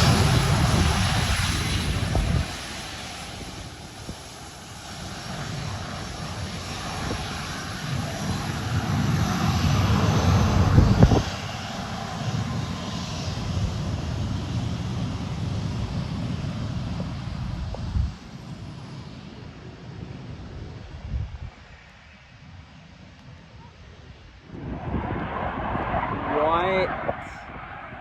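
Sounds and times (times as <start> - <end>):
airplane engine passing: 0.0 - 17.7, 24.5 - 28.0.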